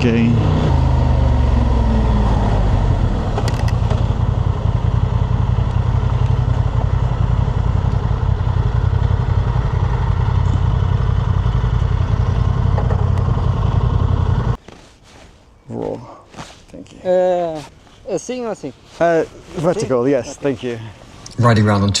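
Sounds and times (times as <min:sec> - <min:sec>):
motorcycle engine idling: 0:03.0 - 0:14.6.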